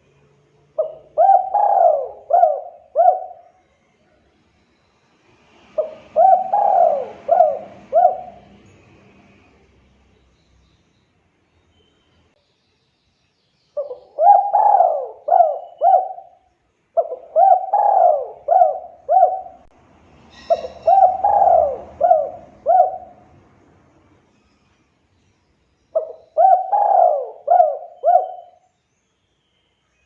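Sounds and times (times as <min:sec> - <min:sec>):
dove cooing: 0:00.8 - 0:03.6, 0:05.8 - 0:08.7, 0:13.8 - 0:16.4, 0:17.0 - 0:19.8, 0:20.4 - 0:23.3, 0:26.0 - 0:28.6.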